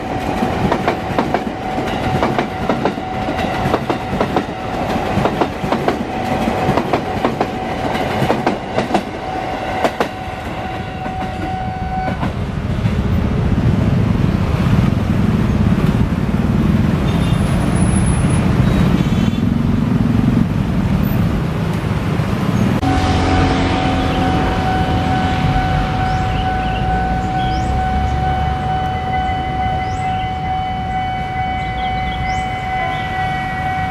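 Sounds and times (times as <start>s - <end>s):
level crossing warning bell: 0.0s - 5.2s, 22.8s - 33.9s
train wheels clicking over rail joints: 0.0s - 9.2s
loud low train rumble: 0.0s - 33.9s.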